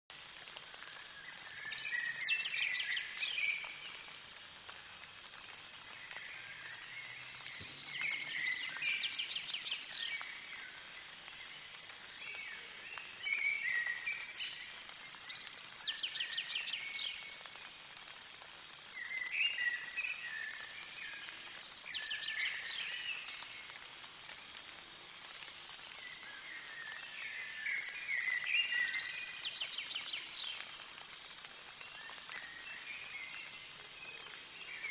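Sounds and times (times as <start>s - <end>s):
songbird singing: 0.0s - 34.9s.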